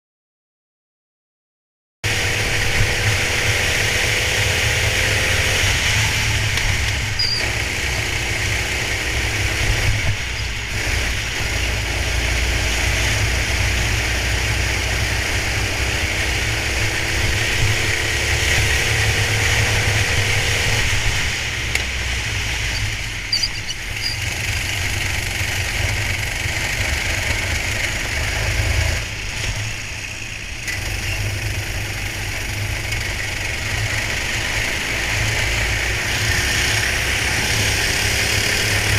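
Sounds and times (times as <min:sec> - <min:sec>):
go-kart engine running: 0:02.1 - 0:38.9.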